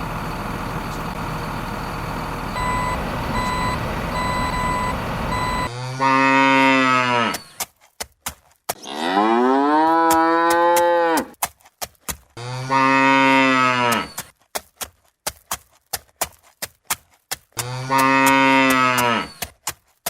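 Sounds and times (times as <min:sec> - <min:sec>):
vehicle reversing beeper: 0:00.0 - 0:05.7
cow mooing: 0:05.7 - 0:07.5, 0:08.8 - 0:11.3, 0:12.4 - 0:14.2, 0:17.6 - 0:19.4.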